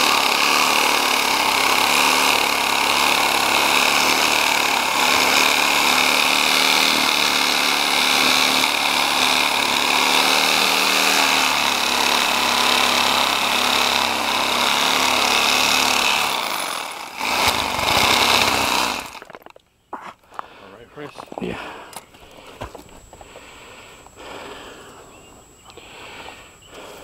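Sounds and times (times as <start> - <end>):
power tool motor running: 0.0 - 19.3.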